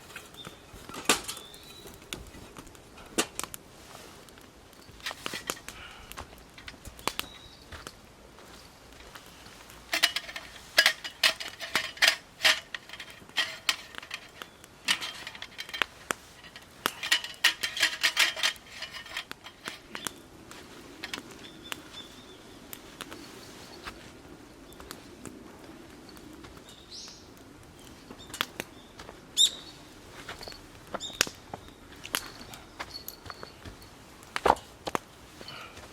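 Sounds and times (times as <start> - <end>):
metal cookware clinking: 9.9 - 20.1.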